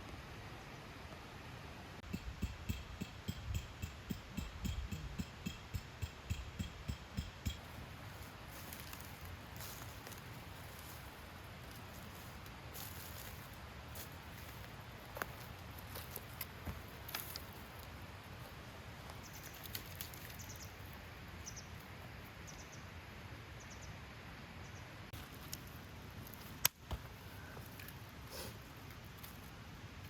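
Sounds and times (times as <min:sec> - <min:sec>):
campfire crackling: 0:07.4 - 0:21.1, 0:25.2 - 0:30.0.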